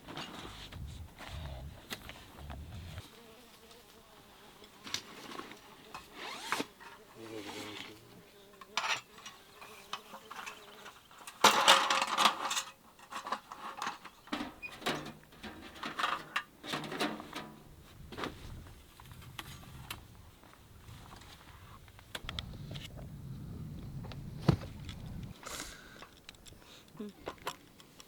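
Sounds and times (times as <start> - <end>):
flying insect buzzing: 0.4 - 11.1.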